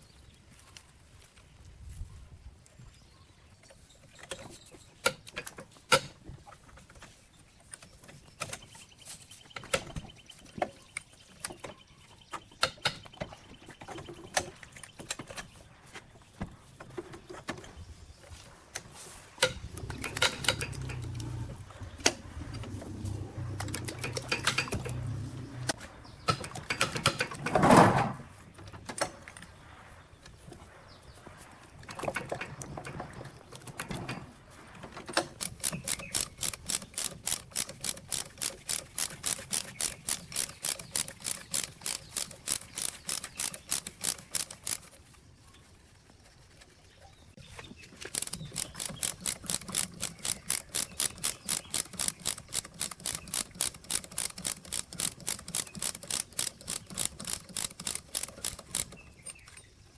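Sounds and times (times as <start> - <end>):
clicks and knocks of tools: 3.7 - 15.6, 18.7 - 27.5, 47.6 - 59.8.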